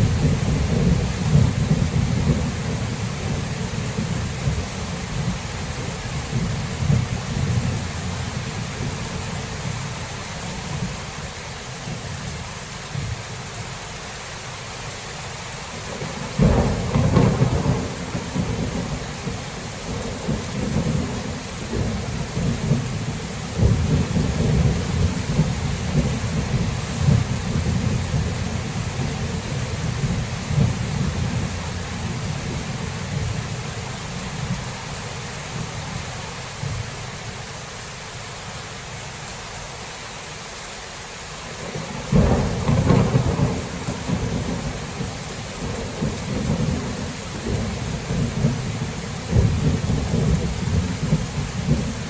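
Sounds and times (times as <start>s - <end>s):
low thunder rumble: 0.0s - 11.1s, 15.9s - 34.8s, 41.6s - 52.0s
steady rain: 0.0s - 52.0s
thunderclap: 16.2s - 33.4s, 41.8s - 52.0s.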